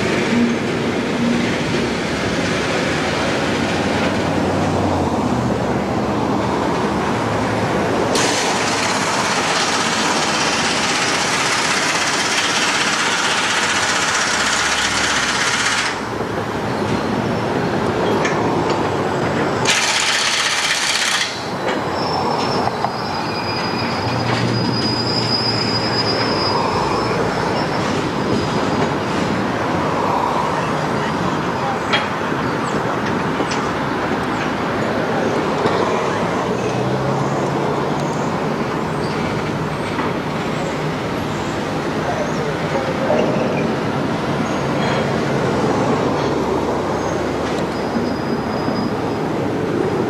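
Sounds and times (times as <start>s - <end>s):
train wheels rushing on rails: 0.0s - 50.0s
high-pitched wheel squealing: 19.2s - 49.9s.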